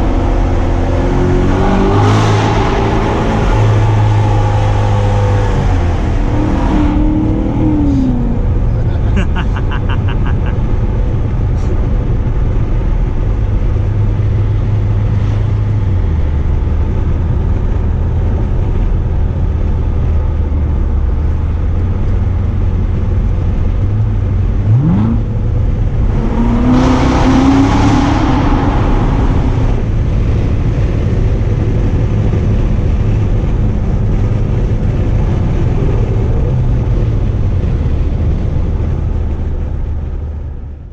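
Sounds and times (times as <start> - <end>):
car engine revving: 0.0 - 10.8, 21.7 - 40.4.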